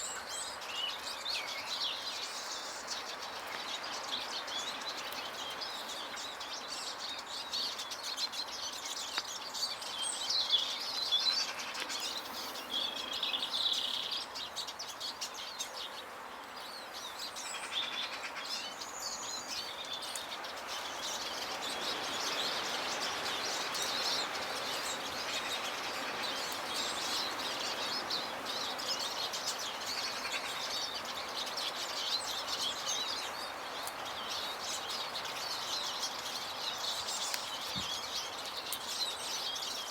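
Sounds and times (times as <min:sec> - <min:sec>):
outdoor background hiss: 0:00.0 - 0:39.9
small birds chirping: 0:00.0 - 0:39.9.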